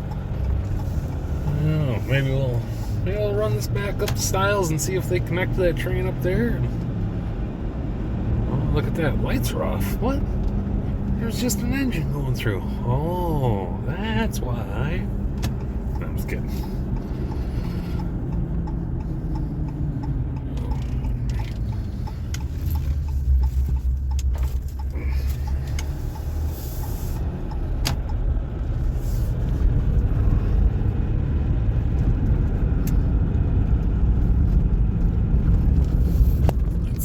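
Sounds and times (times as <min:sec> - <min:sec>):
car engine and road rumble: 0:00.0 - 0:37.0
light ticking: 0:09.1 - 0:28.7.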